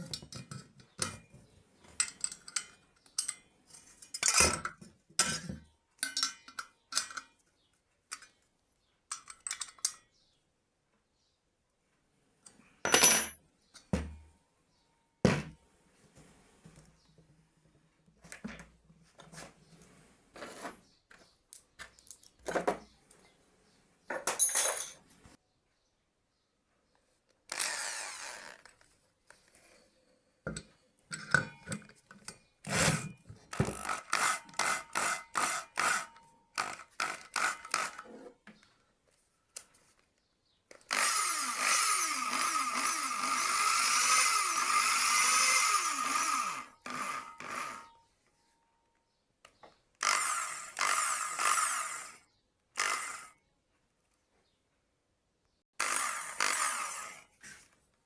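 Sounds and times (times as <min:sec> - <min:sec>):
knocks and scrapes: 0:18.2 - 0:22.9
hand-held power tool running: 0:27.5 - 0:28.7, 0:32.7 - 0:38.2, 0:40.7 - 0:48.0, 0:50.0 - 0:52.2, 0:52.8 - 0:53.3, 0:55.8 - 0:57.4.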